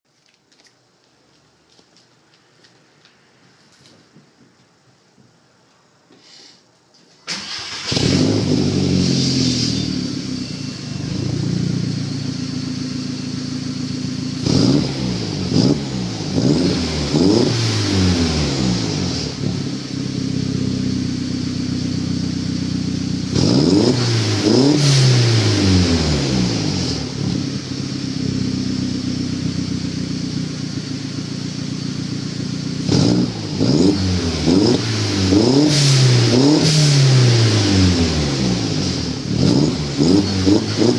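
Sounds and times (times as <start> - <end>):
car engine starting: 7.2 - 40.9
car engine idling: 7.5 - 23.6, 25.4 - 35.4.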